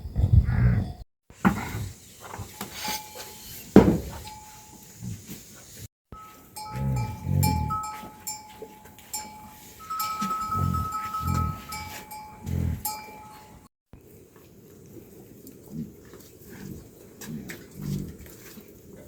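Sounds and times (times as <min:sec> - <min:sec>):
livestock bells ringing: 0:02.5 - 0:05.0, 0:06.2 - 0:13.7
farm animals calling: 0:06.2 - 0:13.6.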